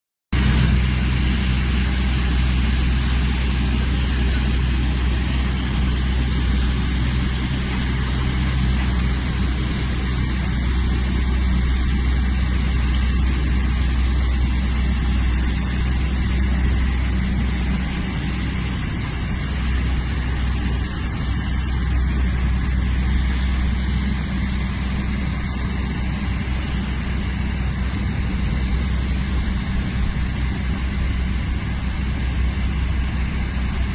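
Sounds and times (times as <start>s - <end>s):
aircraft engine humming: 0.4s - 33.9s.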